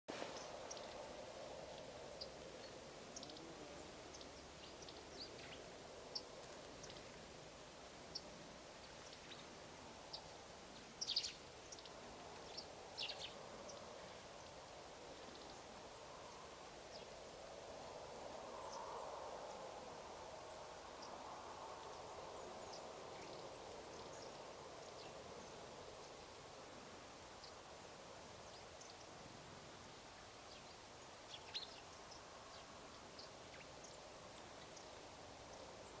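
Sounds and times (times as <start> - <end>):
faint steady hiss: 0.1 - 36.0
low background noise: 0.1 - 36.0
sparrows chirping: 10.1 - 14.3, 30.5 - 34.9.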